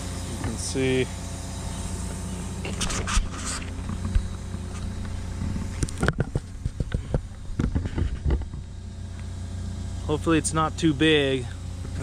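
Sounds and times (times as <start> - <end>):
excavator diesel engine running: 0.0 - 12.0
irregular knocks and clatter: 3.6 - 8.7.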